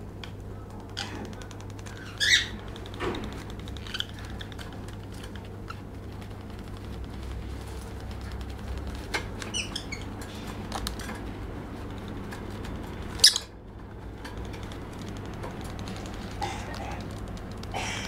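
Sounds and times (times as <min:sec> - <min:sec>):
light scratching ticks: 0:00.1 - 0:18.0
bird chirping and squeaking: 0:01.9 - 0:02.9, 0:03.7 - 0:04.6, 0:09.4 - 0:10.2, 0:13.2 - 0:13.5.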